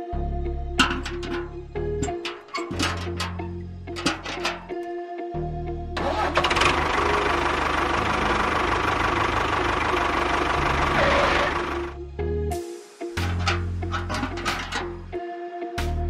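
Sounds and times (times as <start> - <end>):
tractor engine running: 0.8 - 4.9, 6.0 - 12.0, 13.2 - 15.2.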